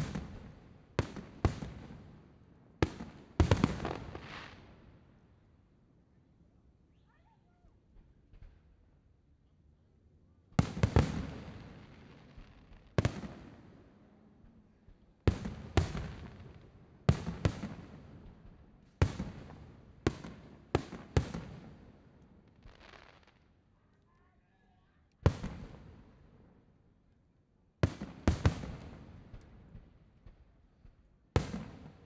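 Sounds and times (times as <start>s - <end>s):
fireworks bursting with echo: 0.0s - 2.2s, 2.8s - 4.8s, 10.6s - 23.5s, 25.3s - 26.4s, 27.8s - 32.0s.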